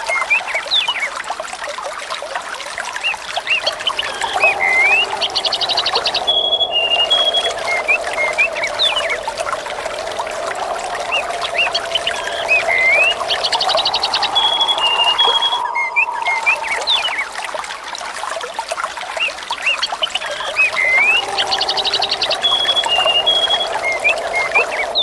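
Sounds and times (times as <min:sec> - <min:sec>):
water flowing and trickling: 0:00.0 - 0:25.0
small birds chirping: 0:03.0 - 0:17.4, 0:19.7 - 0:25.0.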